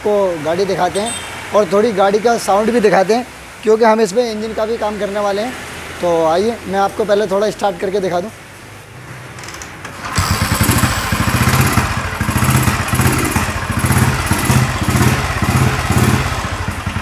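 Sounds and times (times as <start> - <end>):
motorcycle engine starting and thumping: 9.4 - 17.0.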